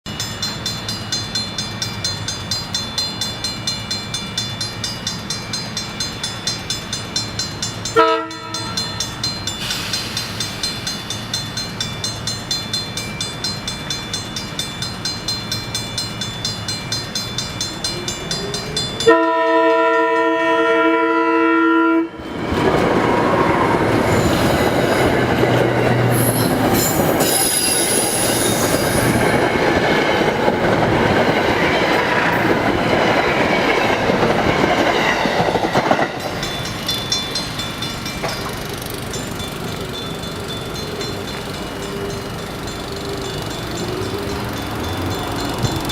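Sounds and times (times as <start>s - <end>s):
crossing warning bell ringing: 0.1s - 45.9s
train horn blasts: 8.0s - 9.0s, 19.0s - 22.2s
train wheels clattering over rails: 8.6s - 19.0s, 22.3s - 45.9s
high wheel squealing: 22.3s - 45.9s.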